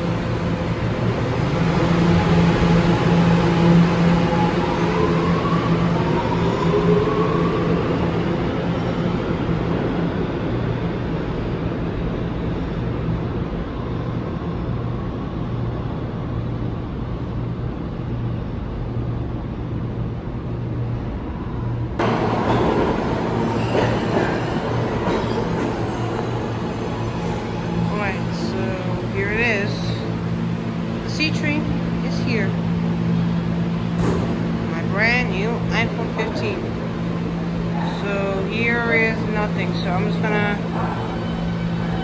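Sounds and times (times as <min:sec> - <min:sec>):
subway train rumbling: 0:00.0 - 0:42.0.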